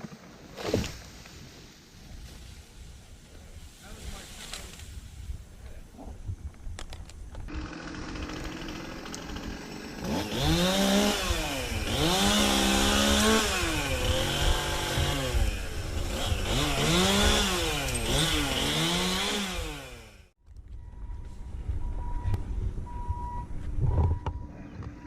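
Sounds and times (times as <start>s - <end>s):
chainsaw revving and cutting wood: 7.5s - 20.4s.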